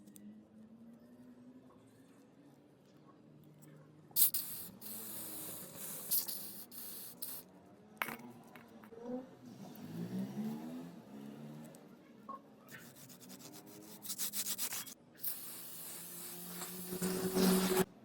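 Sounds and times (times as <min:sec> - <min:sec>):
pressurised spray hissing: 0:04.2 - 0:07.4, 0:12.9 - 0:17.9.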